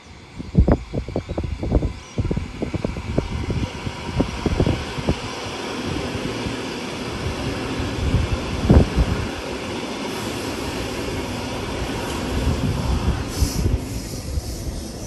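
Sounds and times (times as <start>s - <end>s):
approaching train rumble: 0.0s - 15.0s
wind buffeting the microphone: 0.0s - 15.0s.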